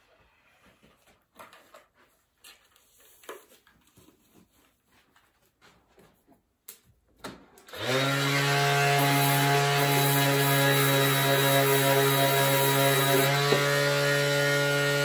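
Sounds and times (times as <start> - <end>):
mini grinder whining: 7.7 - 15.0.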